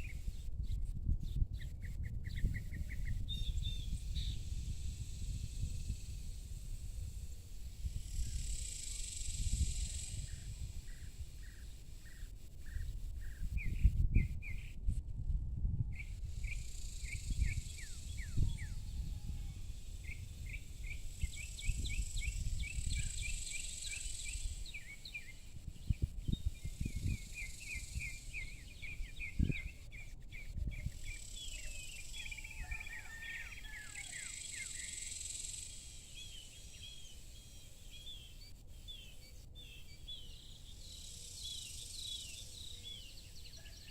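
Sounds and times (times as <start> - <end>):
wind on microphone: 0.0 - 35.6
insect buzzing: 3.9 - 13.3, 16.2 - 29.7, 34.1 - 38.3
small birds chirping: 8.1 - 14.8, 16.0 - 43.9.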